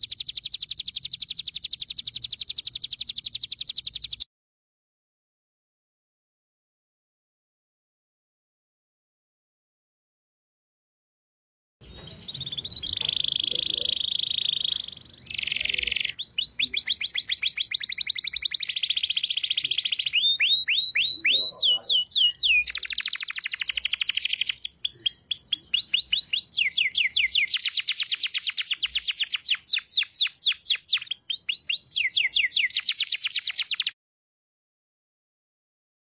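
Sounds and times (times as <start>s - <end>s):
songbird trills: 0.0s - 4.3s, 11.8s - 34.0s.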